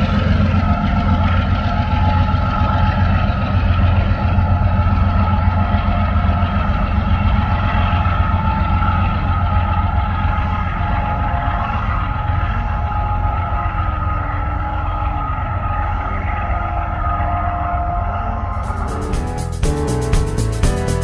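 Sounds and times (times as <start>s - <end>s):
train engine and wheel rumble: 0.0s - 21.0s
thin high tones: 18.2s - 21.0s.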